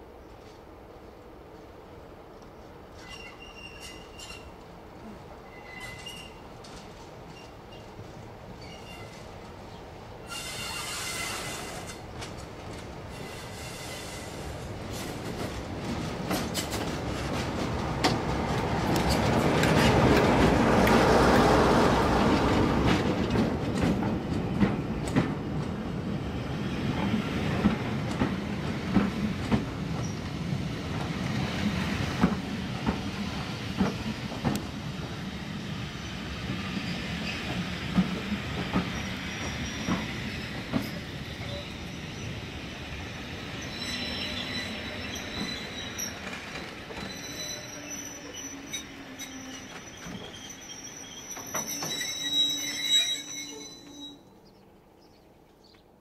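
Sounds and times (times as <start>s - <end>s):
diesel train passing: 0.8s - 54.5s
faint wheel squeal: 3.0s - 4.6s, 5.4s - 6.4s, 8.6s - 9.2s, 10.3s - 11.9s, 43.6s - 46.3s, 47.0s - 54.3s
wheels clicking over rail joints: 14.9s - 21.5s, 22.1s - 25.8s.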